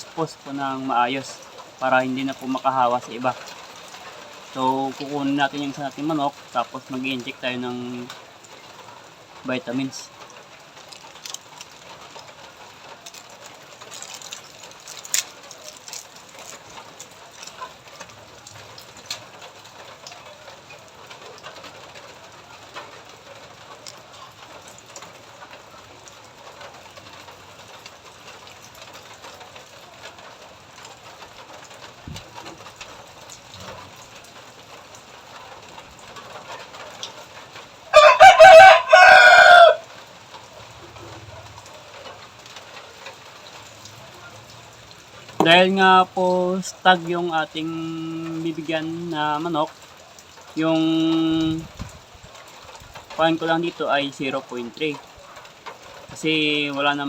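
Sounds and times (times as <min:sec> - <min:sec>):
small ticks: 0:10.1 - 0:37.7
rooster crowing: 0:37.9 - 0:40.0.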